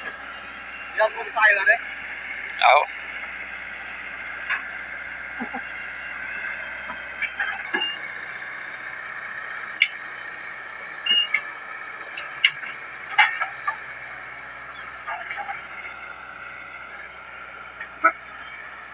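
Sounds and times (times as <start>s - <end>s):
excavator engine droning: 0.0s - 18.9s.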